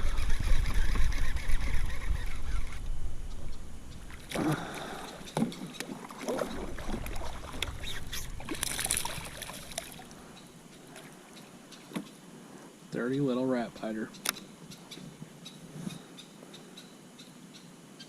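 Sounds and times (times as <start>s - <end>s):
small water sounds: 3.4s - 12.8s.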